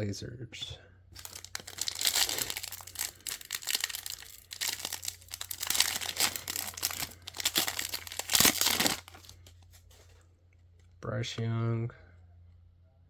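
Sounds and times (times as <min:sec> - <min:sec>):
wrapper ripping: 0:01.2 - 0:10.1
plastic wrapper crinkling: 0:01.2 - 0:10.2.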